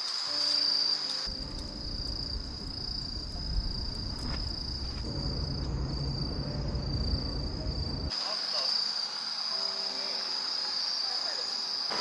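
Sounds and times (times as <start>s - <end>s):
crickets trilling: 0.0s - 12.0s
uneven low rumble: 1.4s - 8.1s.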